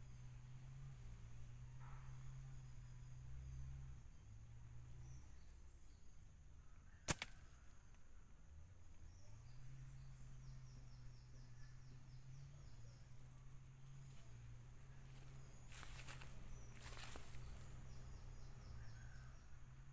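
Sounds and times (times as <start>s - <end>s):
faint low hum: 0.0s - 19.9s
sharp snap: 7.1s - 7.5s.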